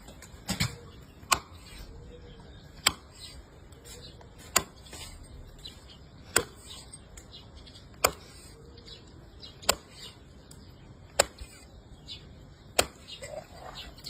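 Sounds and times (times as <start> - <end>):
knife chopping into fish: 8.0 - 8.3.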